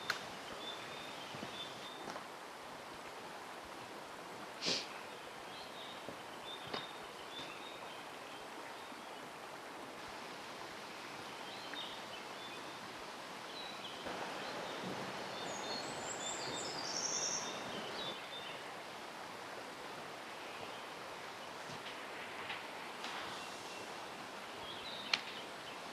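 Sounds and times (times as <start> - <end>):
small birds chirping: 0.0 - 2.2, 4.7 - 9.4, 11.2 - 18.9, 23.0 - 25.9
stream flowing: 0.0 - 25.9.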